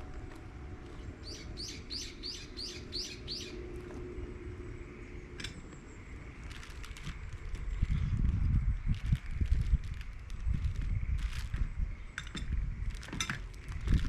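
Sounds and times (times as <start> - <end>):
low background rumble: 0.0 - 14.0
songbird calling: 0.8 - 4.0.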